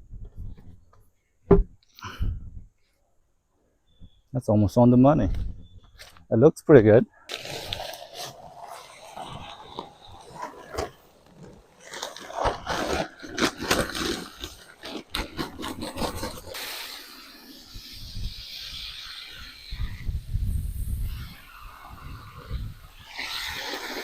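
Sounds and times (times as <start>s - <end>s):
scraping: 7.3s - 17.2s.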